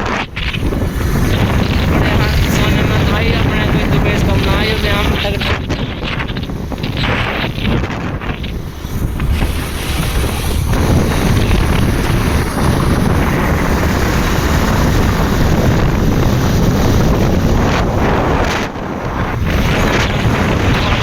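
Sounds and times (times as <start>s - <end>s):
wind rushing over microphone: 0.0s - 21.0s.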